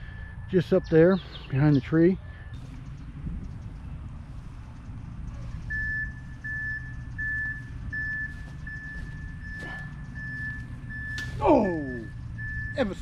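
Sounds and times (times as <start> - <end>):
reversing alarm beeping: 0.0 - 1.1, 5.7 - 13.0
low steady rumble: 2.5 - 13.0.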